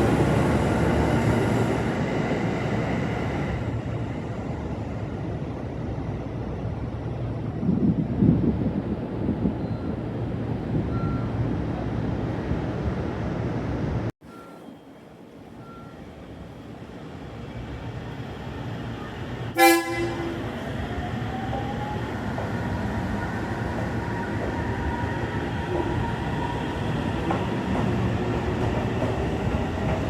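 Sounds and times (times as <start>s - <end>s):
train rumbling: 0.0s - 14.5s, 15.2s - 30.0s
train horn toot: 19.6s - 20.5s.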